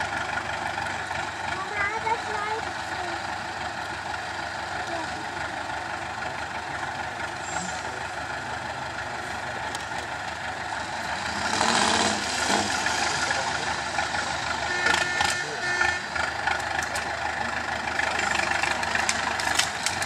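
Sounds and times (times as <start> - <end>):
diesel truck engine running: 0.0 - 20.0.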